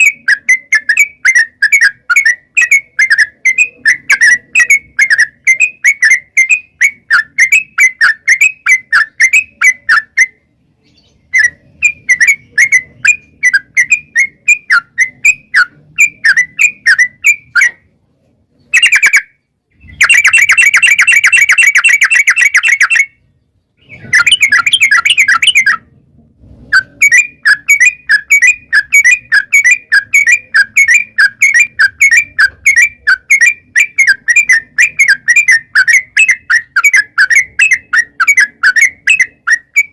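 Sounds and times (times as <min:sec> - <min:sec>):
bulbul singing bubbly notes: 0:24.1 - 0:25.9.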